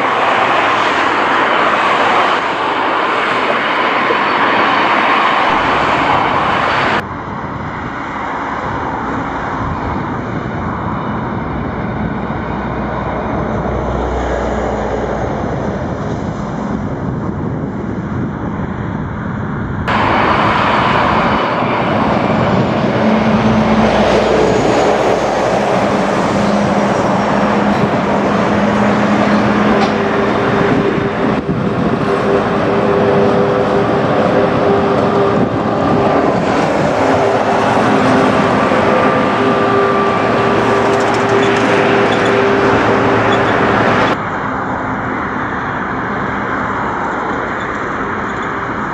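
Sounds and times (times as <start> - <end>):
electric train rushing past: 0.0 - 18.7, 19.9 - 48.9
low hum: 5.4 - 7.2.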